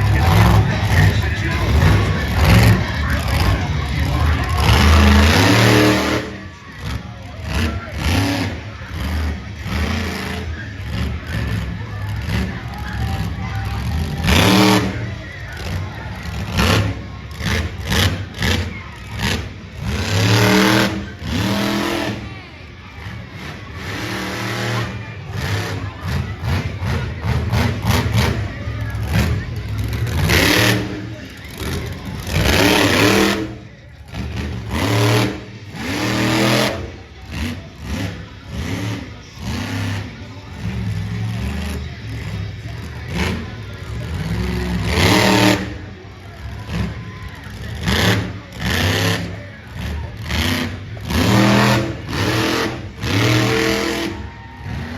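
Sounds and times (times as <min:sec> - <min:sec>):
truck engine revving: 0:00.0 - 0:54.9.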